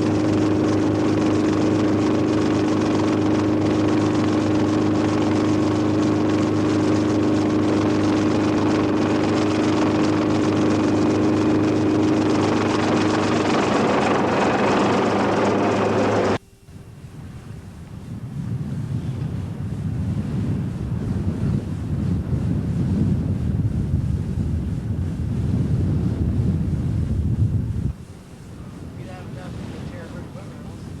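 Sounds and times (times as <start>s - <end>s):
engine running loud: 0.0s - 16.4s.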